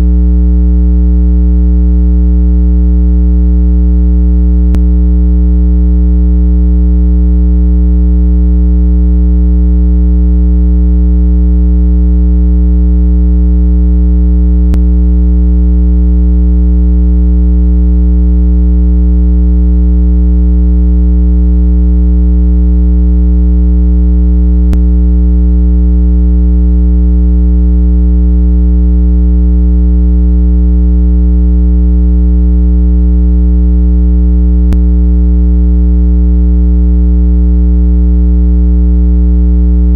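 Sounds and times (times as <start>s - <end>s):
loud low electronic tone: 4.6s - 5.0s, 14.5s - 15.2s, 24.6s - 25.0s, 34.7s - 34.9s.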